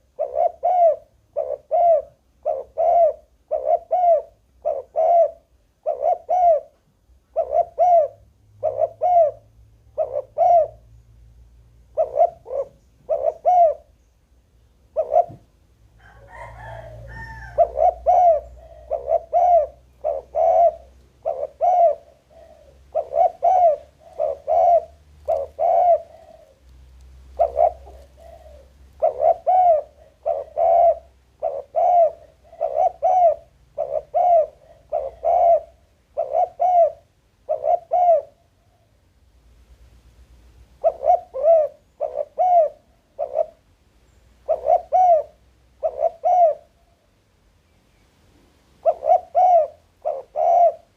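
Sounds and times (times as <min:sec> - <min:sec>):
dove cooing: 0:00.0 - 0:10.9, 0:11.8 - 0:14.0, 0:14.9 - 0:39.0, 0:40.8 - 0:43.7, 0:44.4 - 0:47.0, 0:48.8 - 0:50.9.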